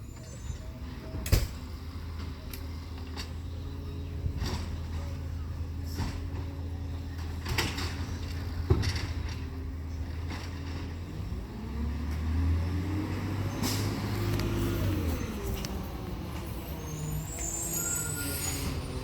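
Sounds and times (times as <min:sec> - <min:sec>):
diesel engine running and revving: 0:00.0 - 0:19.0.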